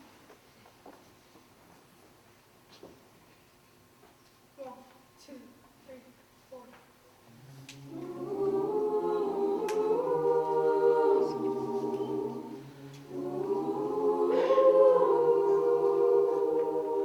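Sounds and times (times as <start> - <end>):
a cappella group singing chords: 7.7 - 17.0.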